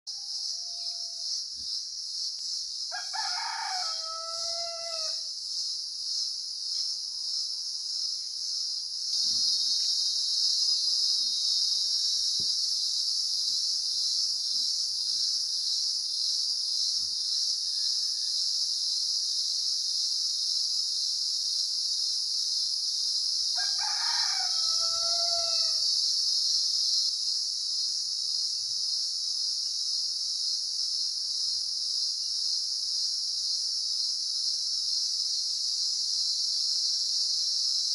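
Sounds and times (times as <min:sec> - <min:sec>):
high-pitched insect chorus: 0:00.1 - 0:37.9
rooster crowing: 0:02.9 - 0:05.3, 0:23.6 - 0:25.9.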